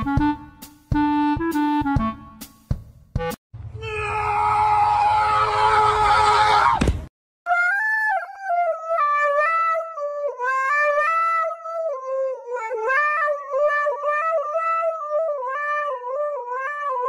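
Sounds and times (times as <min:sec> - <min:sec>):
dog howling into a microphone: 0:03.8 - 0:06.8.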